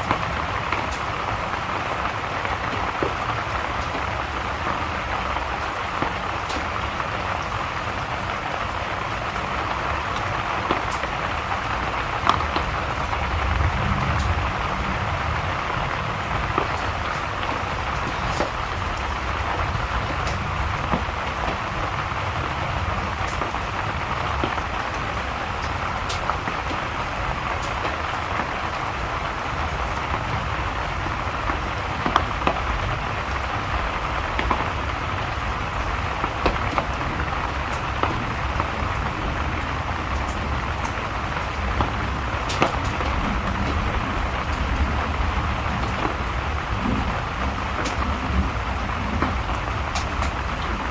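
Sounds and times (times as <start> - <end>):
steady rain: 0.0 - 50.9
wood fire crackling: 0.0 - 50.9.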